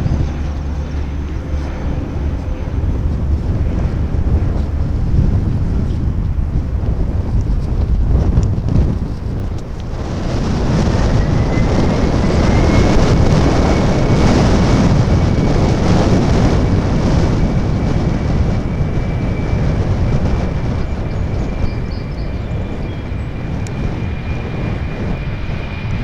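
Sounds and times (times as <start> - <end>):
jet engines rushing and whining: 0.0 - 26.0
wind buffeting microphone: 0.0 - 26.0.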